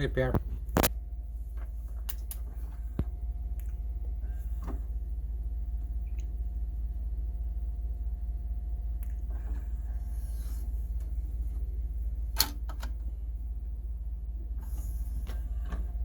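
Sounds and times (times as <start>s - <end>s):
steady low hum: 0.0s - 16.0s
cd player clicking: 12.3s - 13.0s.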